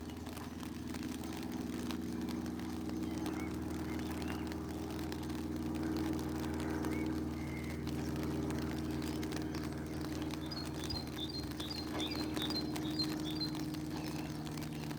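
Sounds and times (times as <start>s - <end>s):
low mechanical hum: 0.0s - 14.9s
faint bird chirps: 9.4s - 14.9s.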